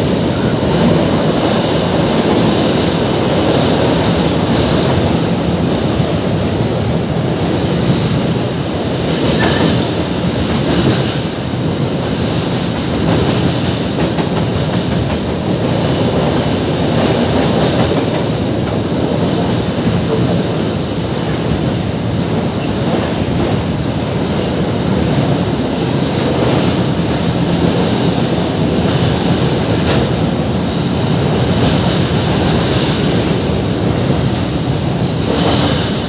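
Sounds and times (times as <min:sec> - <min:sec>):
steel wheels rumbling on rail: 0:00.0 - 0:36.0.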